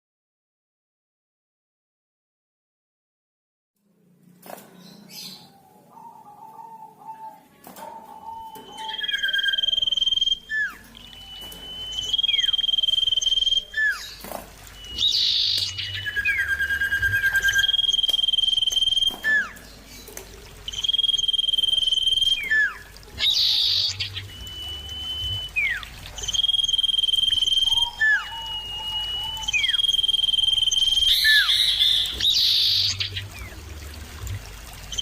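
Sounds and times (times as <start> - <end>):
bird whistling calls: 8.1 - 19.7, 20.6 - 33.6
short down-slurred bird notes: 8.2 - 19.6.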